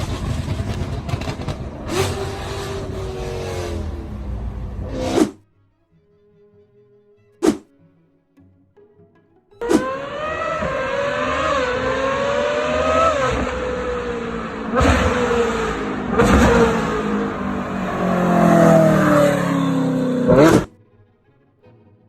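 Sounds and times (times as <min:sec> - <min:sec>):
car engine accelerating hard: 0:00.0 - 0:05.4, 0:09.6 - 0:20.7.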